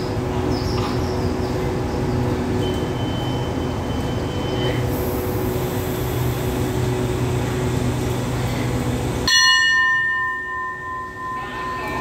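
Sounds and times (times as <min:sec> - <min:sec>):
diesel train engine hum: 0:00.0 - 0:12.0
bell ringing: 0:09.3 - 0:12.0.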